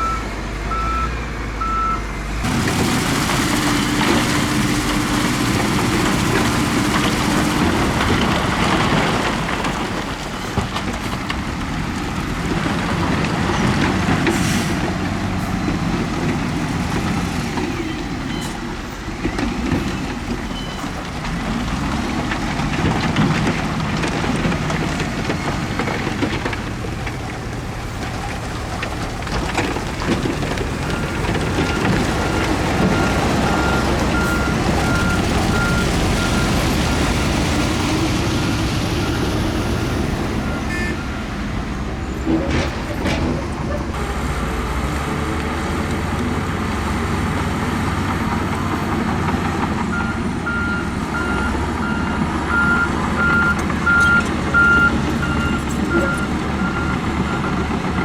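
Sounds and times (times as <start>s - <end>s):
reversing alarm beeping: 0.0s - 2.0s, 38.8s - 41.4s, 49.9s - 57.7s
diesel machinery engine rumble: 0.0s - 58.0s.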